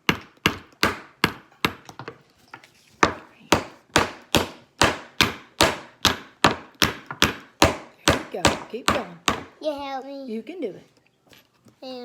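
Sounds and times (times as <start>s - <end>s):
hammer striking nail into wood: 0.0s - 2.1s, 3.0s - 9.5s.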